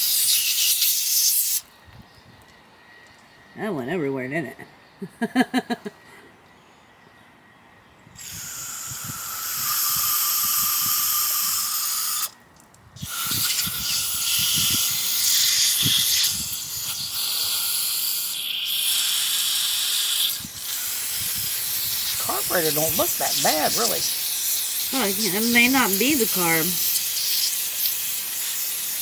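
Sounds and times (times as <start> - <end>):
aerosol spray can hissing: 13.0 - 29.0.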